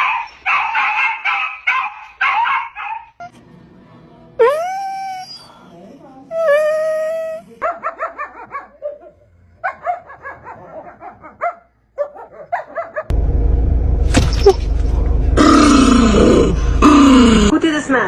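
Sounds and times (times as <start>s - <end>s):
sharp knocks: 14.1s - 15.2s.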